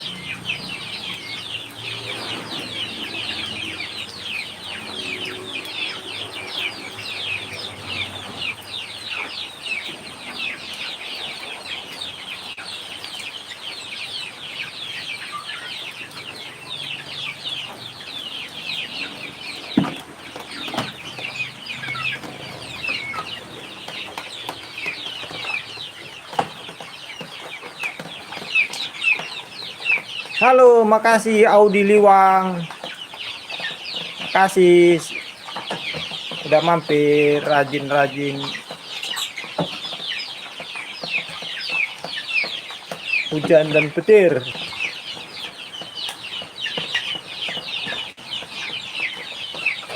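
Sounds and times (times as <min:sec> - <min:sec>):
chicks peeping: 0:00.0 - 0:49.9.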